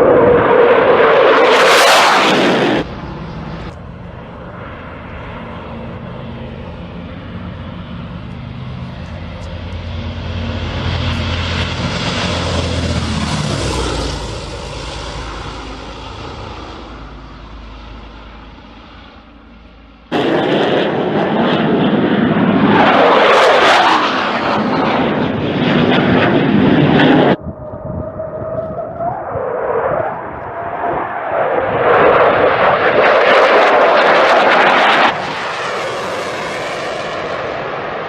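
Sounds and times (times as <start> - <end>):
fighter jets roaring overhead: 0.0 - 38.0.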